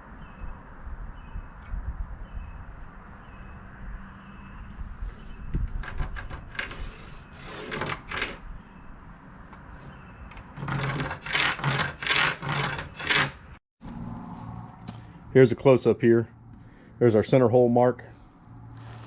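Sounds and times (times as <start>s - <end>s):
pencil scratching on plywood: 5.8s - 8.4s, 9.7s - 13.5s.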